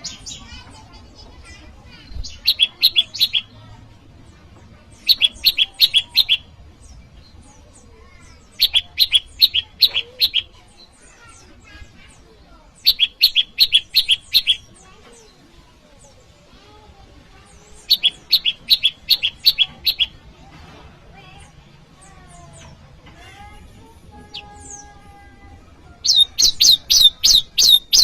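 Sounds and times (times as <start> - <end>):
bird high rapid chirps: 0.0 - 3.6, 4.9 - 15.3, 17.4 - 20.3, 25.9 - 28.0.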